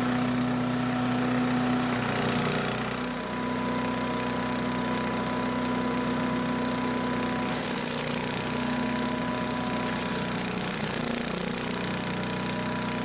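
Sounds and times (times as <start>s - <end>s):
rushing hiss of mulching leaves: 0.0s - 3.0s, 7.3s - 11.2s
chipper shredder engine running: 0.0s - 13.0s.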